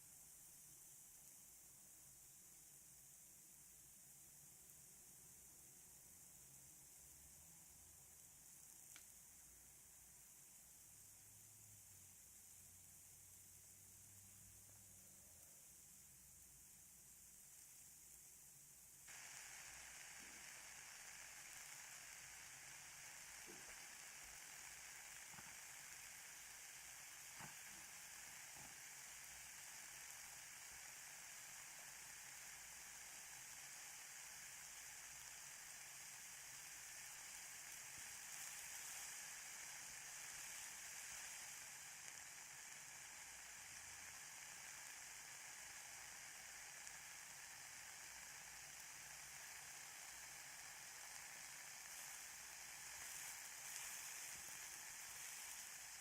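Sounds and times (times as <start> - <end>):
ear candles burning: 0.0 - 56.0
soft crackle: 0.0 - 56.0.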